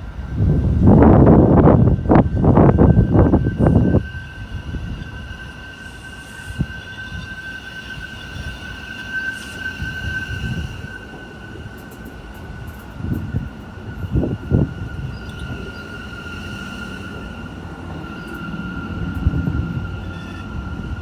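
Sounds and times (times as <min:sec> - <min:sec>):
high-pitched train squeal: 0:00.0 - 0:21.0
subway train rumbling: 0:00.0 - 0:21.0.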